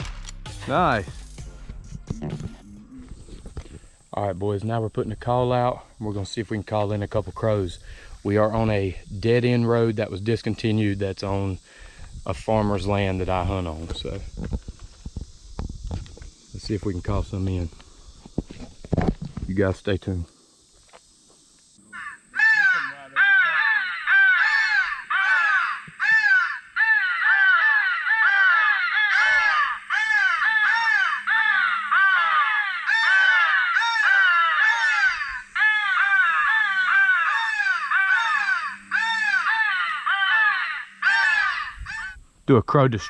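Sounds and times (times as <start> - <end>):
harsh crow caws: 21.9 - 42.2.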